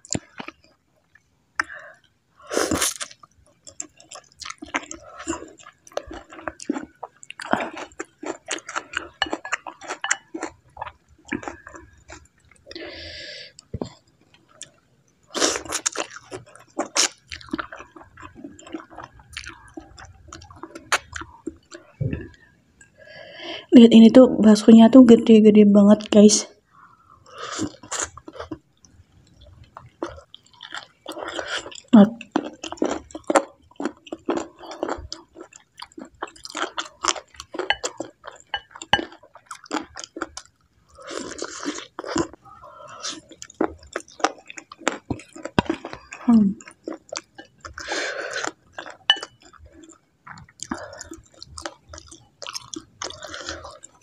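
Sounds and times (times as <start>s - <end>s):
person chewing with wet smacks: 0.0s - 1.7s, 2.7s - 12.8s, 13.5s - 22.9s, 27.6s - 54.0s
wet chewing and mouth smacks: 41.2s - 54.0s.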